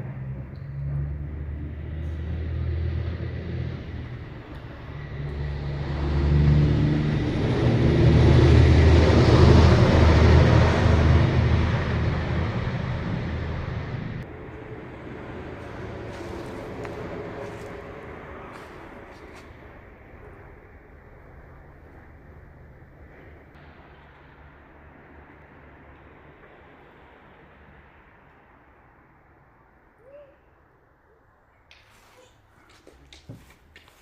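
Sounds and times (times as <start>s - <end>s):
vehicle engine hum: 0.0s - 34.0s.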